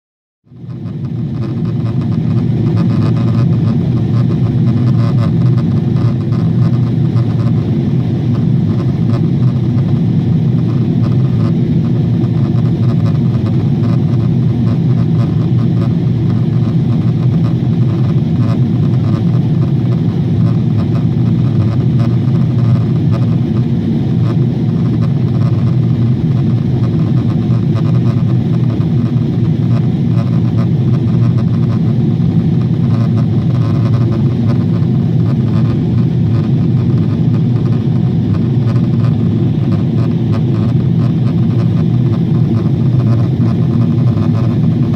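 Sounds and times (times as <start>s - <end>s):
airplane engines and airflow drone: 0.5s - 44.9s.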